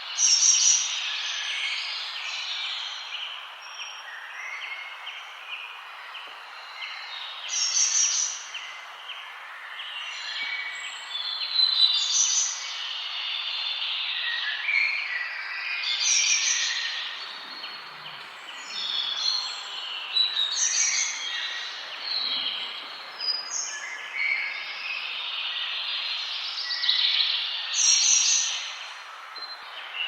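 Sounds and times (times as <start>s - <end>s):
background hiss: 0.0s - 30.0s
birds chirping: 15.9s - 30.0s.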